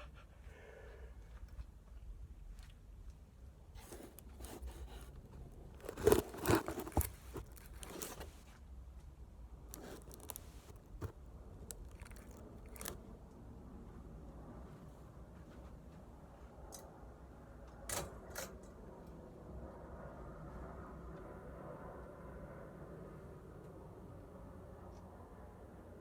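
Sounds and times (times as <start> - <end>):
handling scraping and clicking: 3.8 - 8.6, 9.7 - 13.0.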